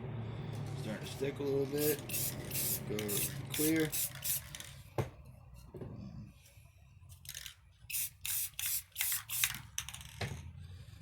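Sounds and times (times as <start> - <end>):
aerosol can spraying: 1.8 - 4.6, 7.9 - 9.6.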